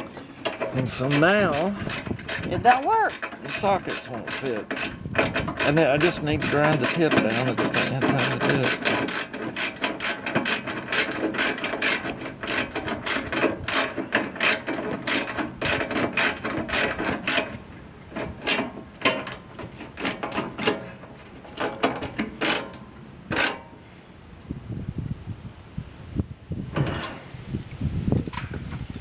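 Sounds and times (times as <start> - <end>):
ratchet wrench clicking: 0.5 - 20.9, 21.6 - 22.8, 23.4 - 23.6.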